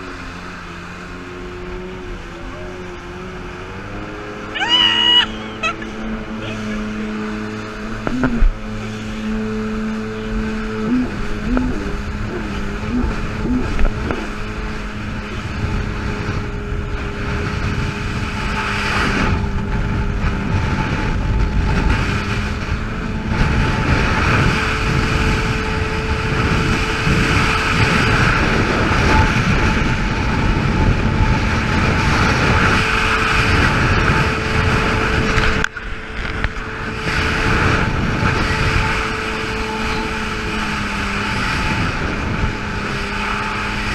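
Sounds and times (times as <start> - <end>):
jet ski engine running: 0.0 - 43.9
water spray and wind: 0.0 - 43.9.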